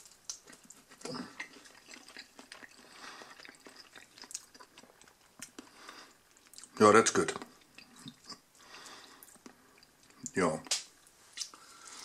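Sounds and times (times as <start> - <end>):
crackling crispy chicken coating: 0.0 - 8.3
wet chewing: 0.0 - 10.3.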